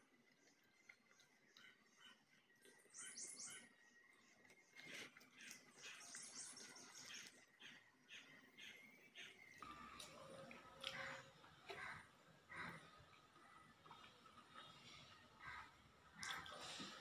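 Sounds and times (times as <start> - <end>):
chewing: 0.0 - 2.8, 4.1 - 7.4, 9.6 - 17.0
faint bird chirping: 0.3 - 17.0.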